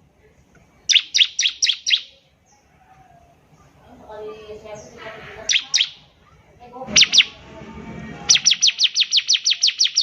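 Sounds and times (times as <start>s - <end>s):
bird singing down-slurred trill: 0.8s - 2.7s, 4.6s - 6.2s, 6.9s - 7.4s, 8.2s - 10.0s.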